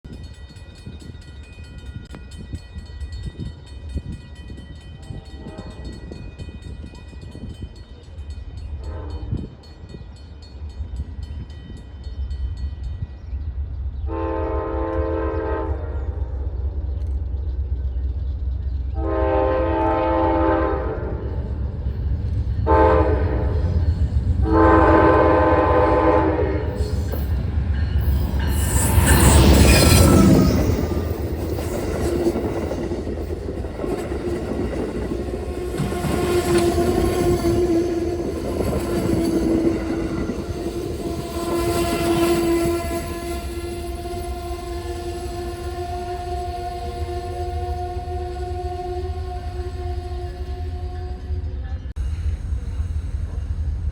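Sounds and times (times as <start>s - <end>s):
passing train rumble: 0.1s - 53.9s
train horn blasts: 5.0s - 6.2s, 8.7s - 9.7s, 14.0s - 16.4s, 18.9s - 21.5s, 22.6s - 27.3s, 28.0s - 51.8s.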